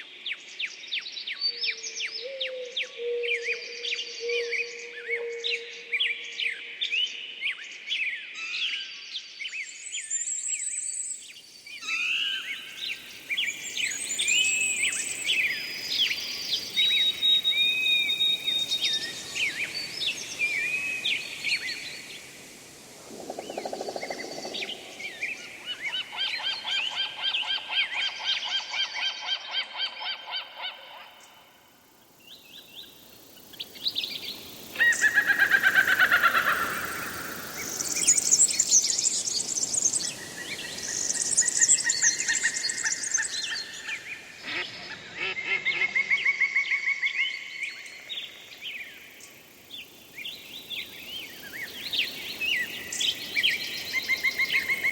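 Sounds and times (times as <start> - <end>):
birds chirping and whistling: 13.4 - 22.1.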